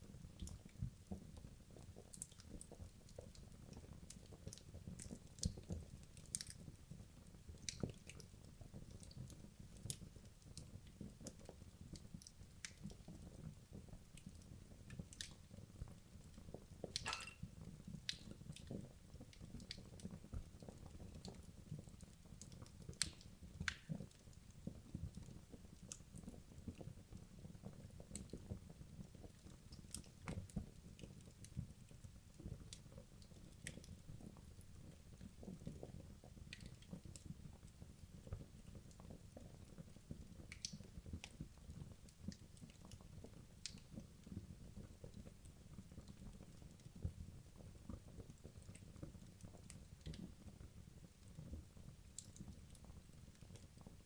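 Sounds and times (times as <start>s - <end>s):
burning wood crackling and popping: 14.1s - 26.9s, 38.3s - 54.0s.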